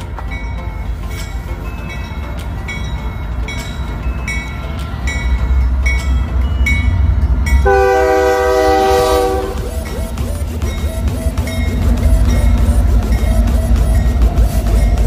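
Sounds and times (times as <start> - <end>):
diesel locomotives rumbling: 0.0 - 15.0
locomotive air horn blast: 7.6 - 10.4.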